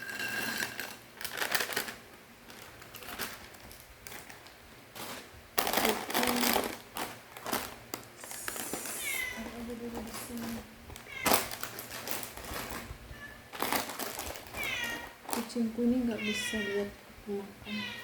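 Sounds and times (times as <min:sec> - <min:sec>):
cat meowing: 0:08.9 - 0:09.6, 0:11.0 - 0:11.5, 0:13.1 - 0:13.5, 0:14.5 - 0:15.2, 0:16.1 - 0:16.9, 0:17.6 - 0:18.0.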